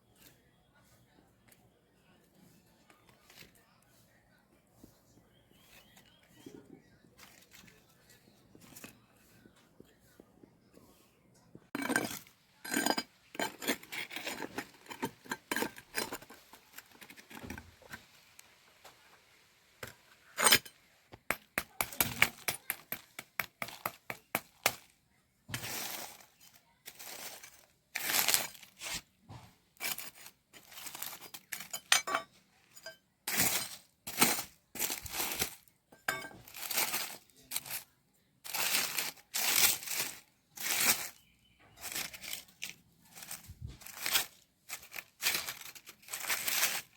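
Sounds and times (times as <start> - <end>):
wrapping crinkling and tearing: 29.8 - 31.8, 36.4 - 37.8, 38.4 - 41.2, 41.8 - 46.9.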